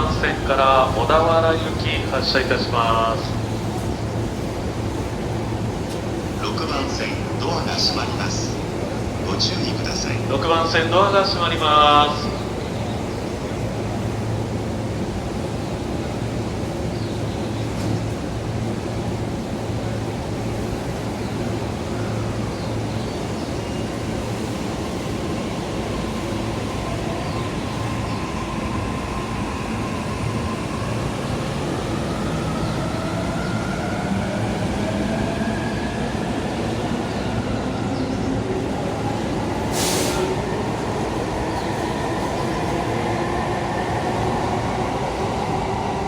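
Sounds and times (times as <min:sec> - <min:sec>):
wheels rumbling on rail: 0:00.0 - 0:46.0
burst of hiss: 0:39.7 - 0:40.4.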